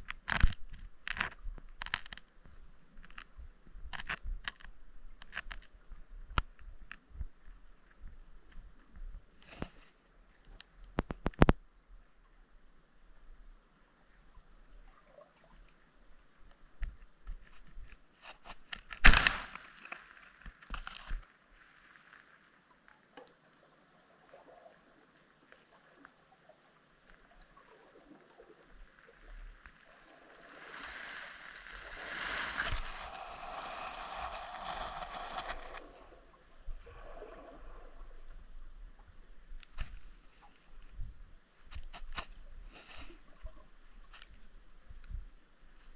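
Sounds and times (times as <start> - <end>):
underwater clicks and knocks: 0.0 - 7.5, 10.6 - 11.6
short rushing hiss: 30.6 - 35.8.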